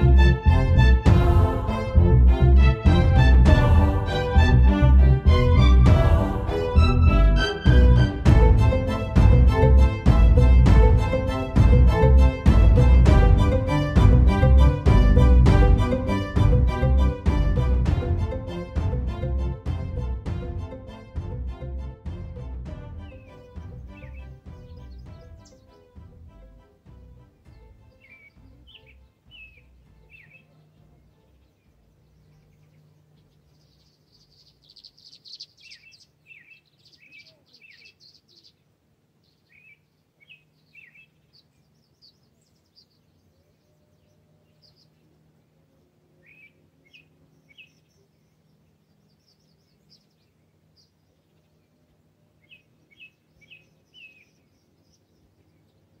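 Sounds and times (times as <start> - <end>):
wild birds chirping: 23.0 - 56.0.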